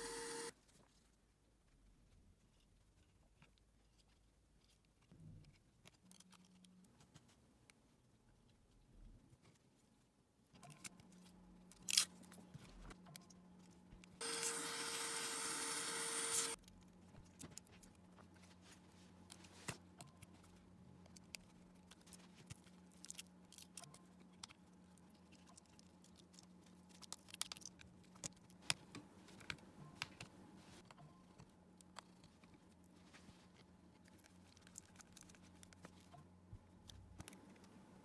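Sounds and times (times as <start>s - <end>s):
loud steady whirring: 0.0s - 0.5s, 14.2s - 16.6s.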